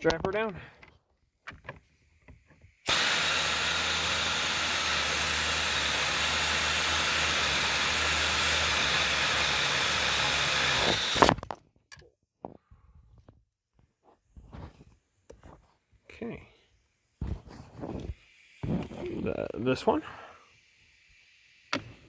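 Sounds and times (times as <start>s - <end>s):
pneumatic air tool hissing: 2.9s - 11.4s, 17.2s - 22.0s.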